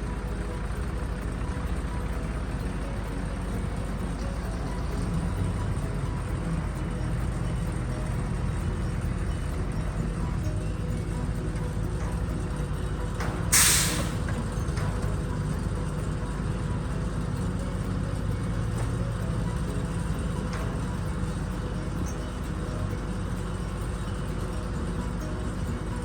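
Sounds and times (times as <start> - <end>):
engine running: 0.0 - 26.0
short loud hiss: 13.5 - 14.2.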